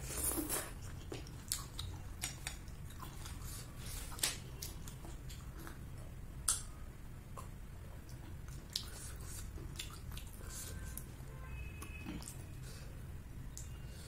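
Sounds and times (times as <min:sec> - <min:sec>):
steady low hum: 0:00.0 - 0:14.0
chewing: 0:00.1 - 0:06.6, 0:07.3 - 0:11.1
sharp mouth clicks: 0:06.4 - 0:06.7.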